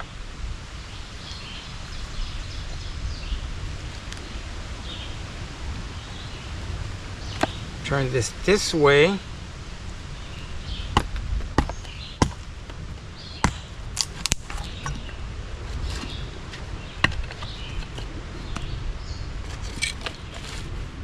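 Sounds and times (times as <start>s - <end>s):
knife splitting wood: 13.4s - 15.0s.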